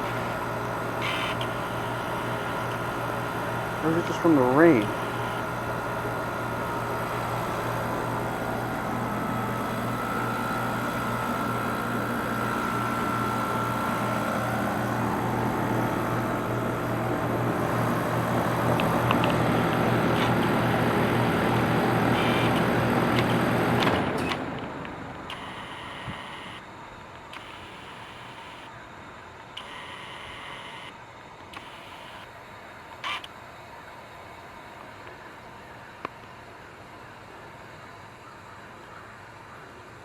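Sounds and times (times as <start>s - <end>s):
faint high whine: 0.0s - 22.7s, 24.1s - 40.0s
fan turning: 0.0s - 27.8s
compressor humming low: 0.0s - 40.0s.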